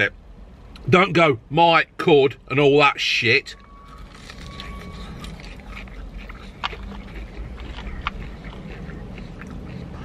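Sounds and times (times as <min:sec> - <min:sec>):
person chewing crispy food: 0:03.8 - 0:10.0.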